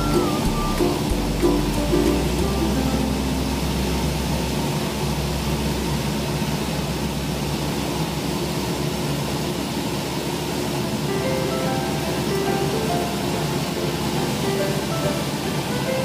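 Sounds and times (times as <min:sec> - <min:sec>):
rushing air: 0:00.0 - 0:16.0
aircraft engine and propeller drone: 0:03.2 - 0:16.0.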